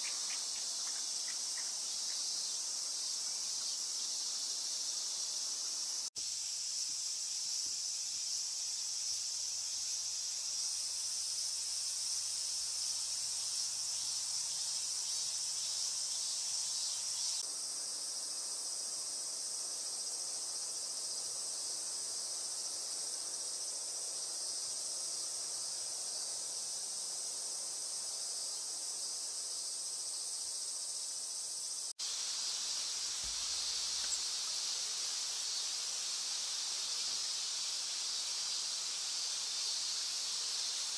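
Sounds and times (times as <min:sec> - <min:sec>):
shrill insect chorus: 0:00.0 - 0:40.9.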